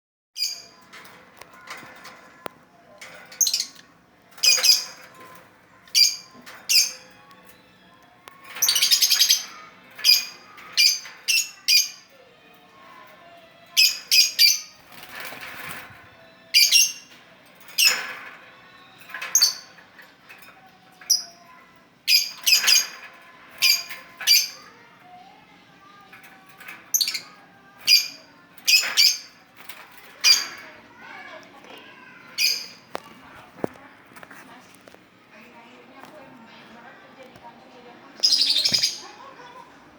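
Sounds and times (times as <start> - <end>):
songbird chirping: 38.0 - 39.6.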